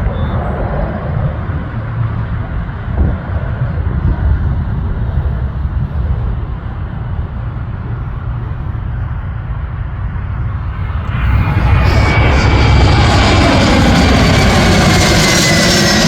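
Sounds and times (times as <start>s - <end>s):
jet engines roaring: 0.0s - 16.0s
low rumble: 0.0s - 16.0s
thin high whine: 10.3s - 16.0s.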